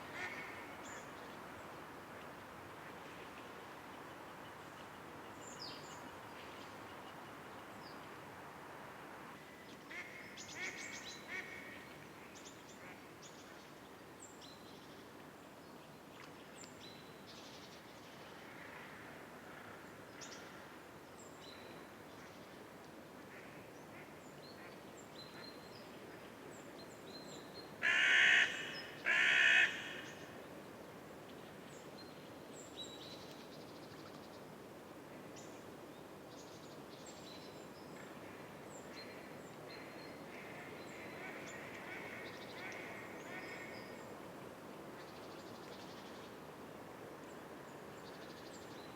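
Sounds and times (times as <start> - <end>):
steady background hiss: 0.0 - 48.9.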